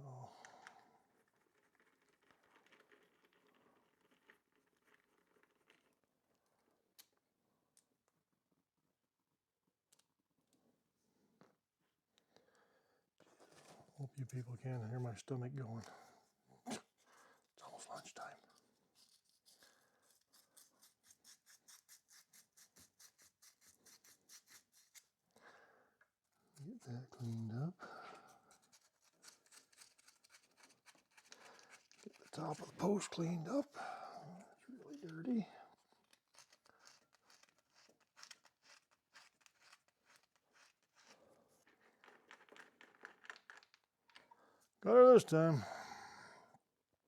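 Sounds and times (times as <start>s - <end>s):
emery cloth scratching metal: 18.8s - 25.2s, 28.3s - 33.7s, 34.8s - 41.3s.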